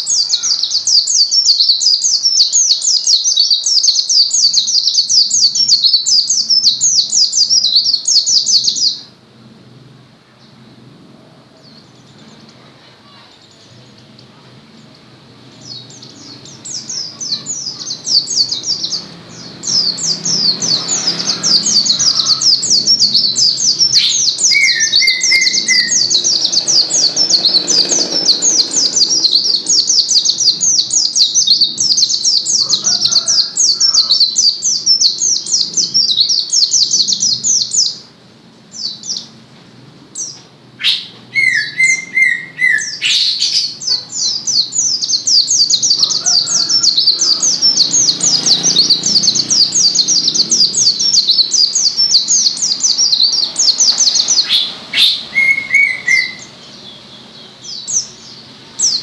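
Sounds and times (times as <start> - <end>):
bird chattering song: 0.0 - 9.1, 11.6 - 38.0, 40.2 - 59.0
low bird trill: 15.0 - 37.7, 40.8 - 56.9.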